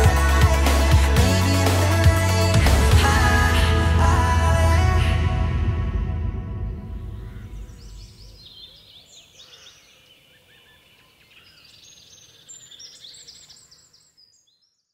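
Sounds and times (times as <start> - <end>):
background music: 0.0 - 7.9
small birds chirping: 7.2 - 14.9.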